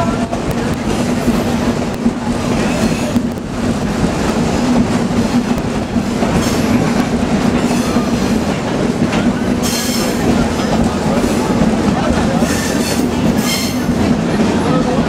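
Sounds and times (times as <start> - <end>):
steel wheels rumbling on rails: 0.0 - 15.0.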